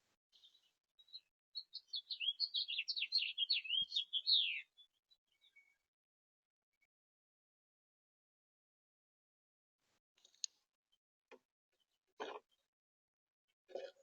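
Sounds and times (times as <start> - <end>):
songbird warbling: 1.6 - 4.7.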